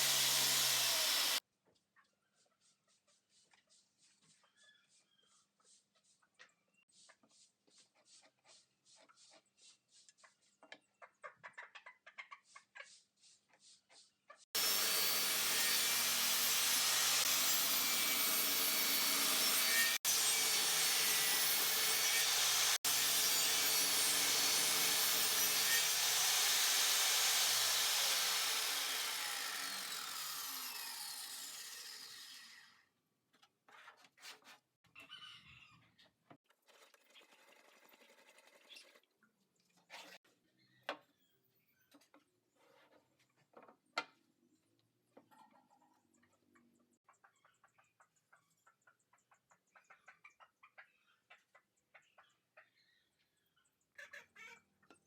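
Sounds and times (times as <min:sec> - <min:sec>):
power tool cutting plywood: 0:00.0 - 0:01.4, 0:14.6 - 0:32.8.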